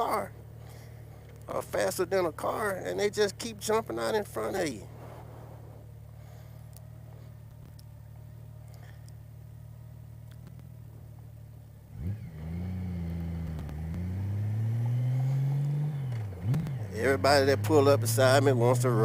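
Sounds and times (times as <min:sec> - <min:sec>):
motorcycle engine pulling away: 0:11.8 - 0:19.0.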